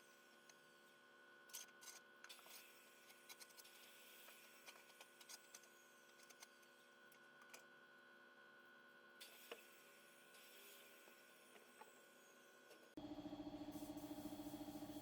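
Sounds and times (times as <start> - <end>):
steady low hum: 9.8 - 15.0.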